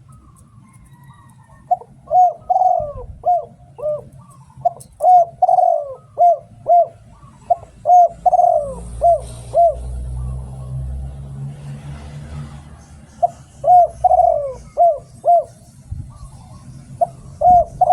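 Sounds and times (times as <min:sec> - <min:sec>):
dove cooing: 0:00.0 - 0:11.0, 0:13.2 - 0:17.9.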